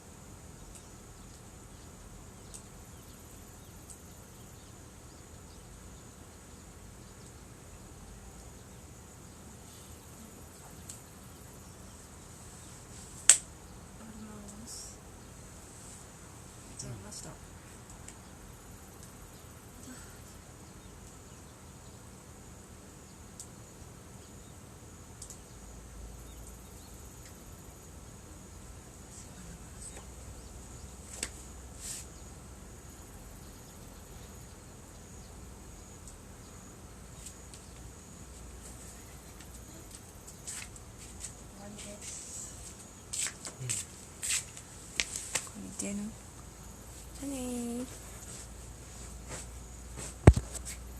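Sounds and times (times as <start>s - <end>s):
insects chirring: 0.0s - 50.9s
faint pops: 50.0s - 50.7s.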